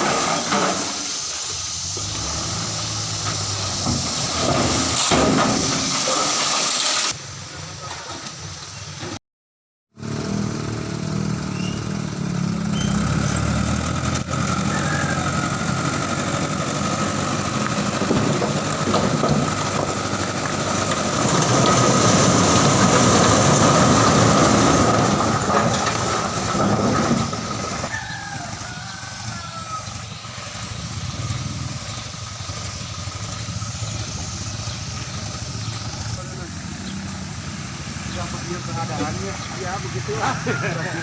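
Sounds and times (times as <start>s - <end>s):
vehicle engine running: 10.0s - 41.0s.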